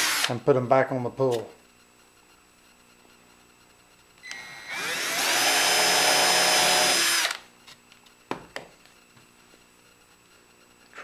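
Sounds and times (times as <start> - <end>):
electric drill drilling wood: 0.0 - 0.3, 4.2 - 7.4.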